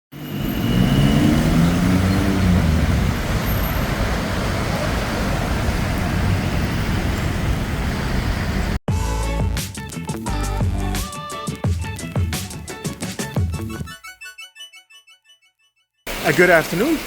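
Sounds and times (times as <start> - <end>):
road traffic noise: 0.1 - 8.8, 16.1 - 17.0
vehicle engine accelerating: 0.1 - 8.8
steady hiss: 16.1 - 17.0.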